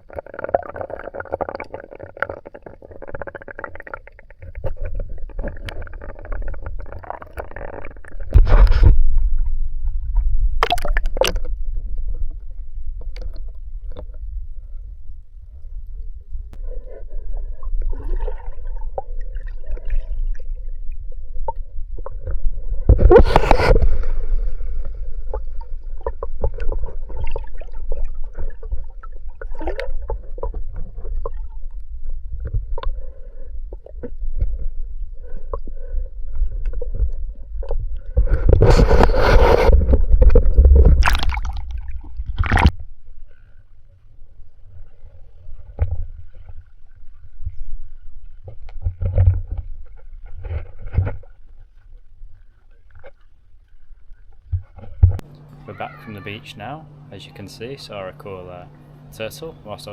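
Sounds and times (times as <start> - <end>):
water sloshing and gurgling: 0.0 - 55.5
rushing water splashes: 40.9 - 42.8.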